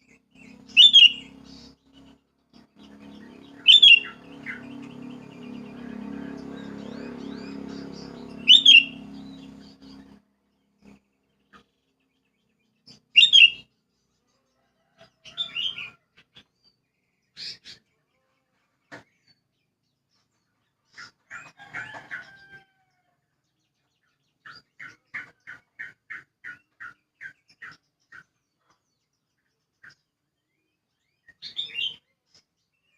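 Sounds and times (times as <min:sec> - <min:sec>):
bird calling: 0:00.5 - 0:02.1, 0:02.8 - 0:10.2, 0:13.2 - 0:13.6.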